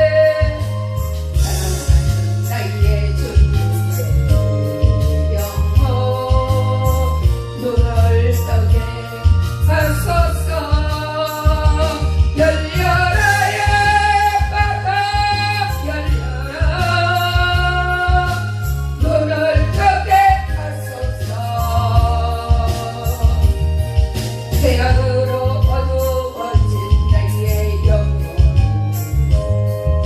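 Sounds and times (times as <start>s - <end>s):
person singing: 0.0s - 23.8s
instrumental accompaniment: 0.0s - 30.0s
pulsing bass: 0.0s - 30.0s.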